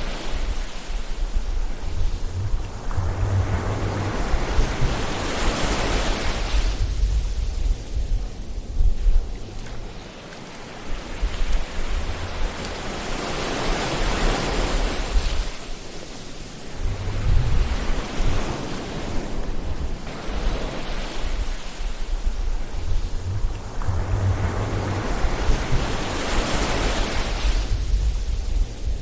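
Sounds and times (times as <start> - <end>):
low surf rumble: 0.0 - 10.0, 16.6 - 29.0
ocean waves hissing: 0.0 - 29.0.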